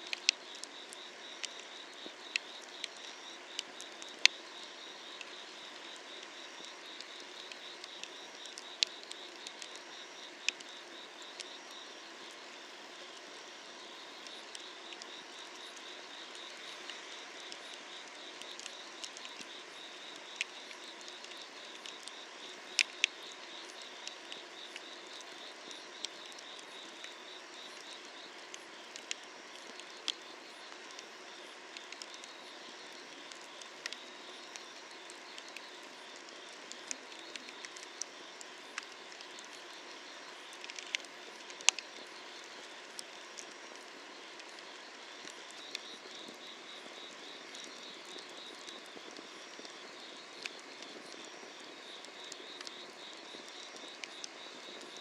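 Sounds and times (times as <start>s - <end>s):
night insects trilling: 0.0s - 55.0s
wood fire crackling: 27.7s - 46.6s, 47.5s - 55.0s.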